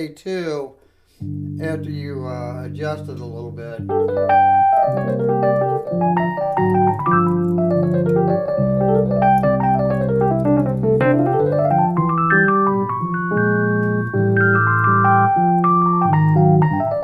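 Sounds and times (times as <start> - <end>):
electric piano playing: 1.2 - 17.0.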